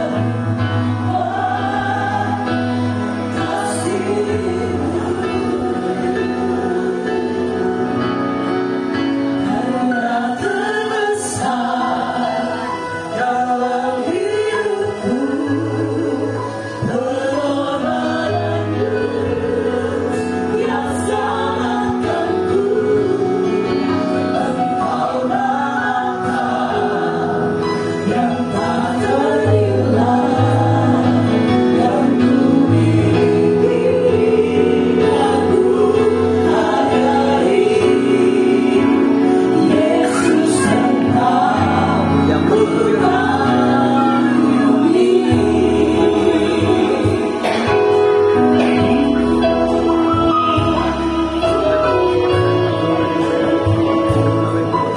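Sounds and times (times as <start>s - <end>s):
keyboard accompaniment: 0.0s - 54.9s
mixed choir singing a hymn: 0.0s - 54.9s
bass line: 40.9s - 54.9s.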